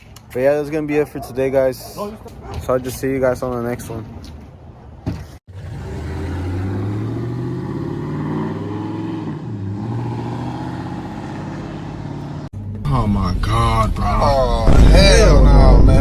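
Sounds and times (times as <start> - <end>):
truck engine with loud exhaust: 5.5 - 12.8.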